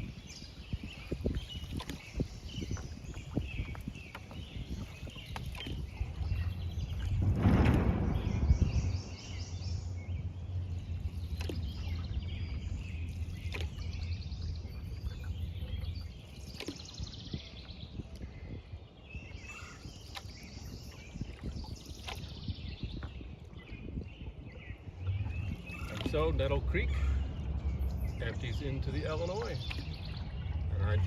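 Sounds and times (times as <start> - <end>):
bird chirping: 0.0 - 18.0, 24.7 - 31.0
rush of water: 0.0 - 18.2, 24.9 - 31.0
low rumble: 4.4 - 16.4, 24.8 - 31.0.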